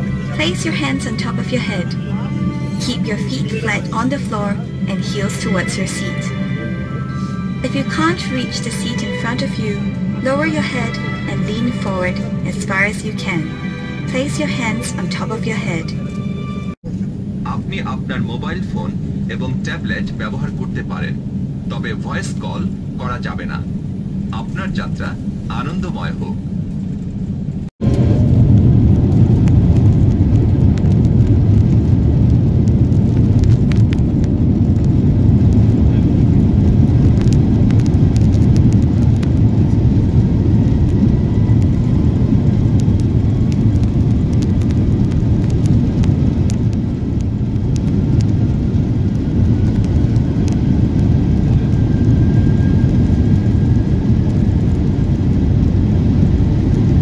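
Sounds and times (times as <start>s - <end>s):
faint engine whine: 0.0s - 57.0s
jet engine and runway rumble: 0.0s - 57.0s.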